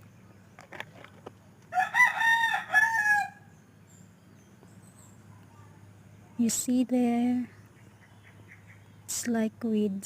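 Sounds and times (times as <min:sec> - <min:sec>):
rooster crowing: 0:01.7 - 0:03.5.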